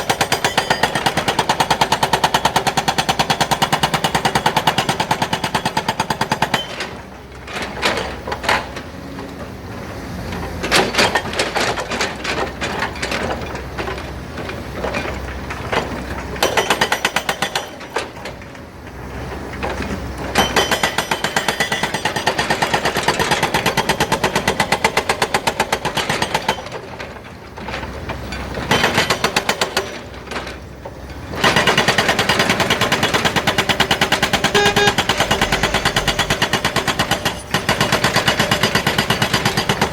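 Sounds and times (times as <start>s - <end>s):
hydraulic hammer pounding rock: 0.0s - 8.7s, 31.3s - 39.9s.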